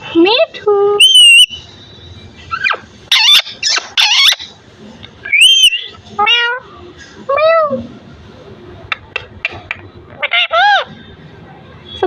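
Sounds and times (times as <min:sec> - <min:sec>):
parrot calling: 0:01.0 - 0:01.7, 0:02.5 - 0:04.6, 0:05.2 - 0:06.7, 0:08.9 - 0:11.1
parrot whistle: 0:01.0 - 0:01.7, 0:05.3 - 0:05.9.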